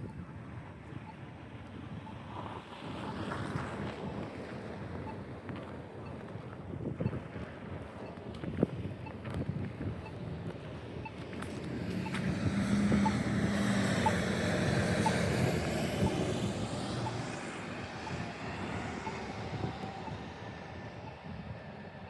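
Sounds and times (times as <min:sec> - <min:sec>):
vehicle passing: 0:10.9 - 0:21.0.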